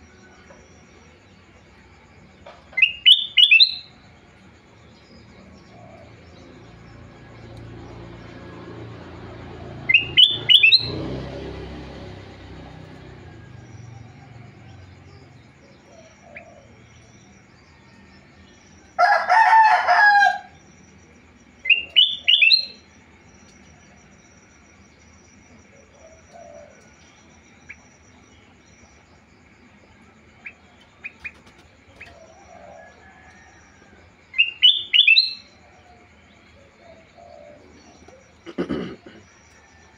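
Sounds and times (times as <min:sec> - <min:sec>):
bulbul whistled song: 0:02.7 - 0:04.0, 0:09.8 - 0:11.0, 0:21.6 - 0:22.9, 0:34.3 - 0:35.6
harsh bird call: 0:02.7 - 0:04.0, 0:09.8 - 0:11.7, 0:34.3 - 0:35.6.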